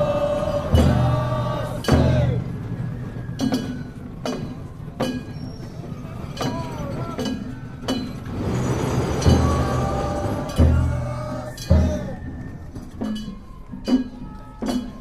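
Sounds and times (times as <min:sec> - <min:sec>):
heavy low drum beat: 0:00.0 - 0:02.8, 0:09.2 - 0:12.3.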